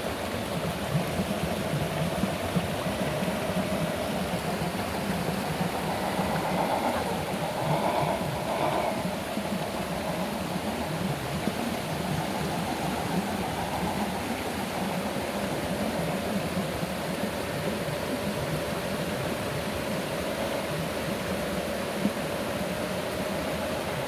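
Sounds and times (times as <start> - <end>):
rushing hiss: 4.9 - 11.3.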